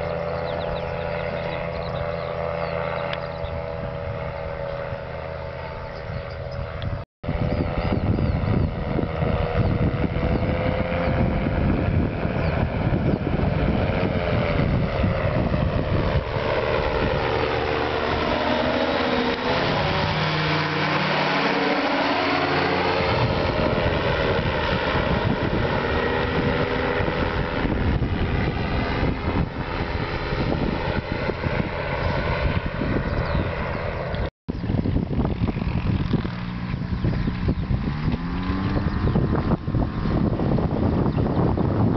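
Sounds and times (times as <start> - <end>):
ultralight aircraft engine: 0.0 - 41.9
wind buffeting microphone: 0.0 - 41.9.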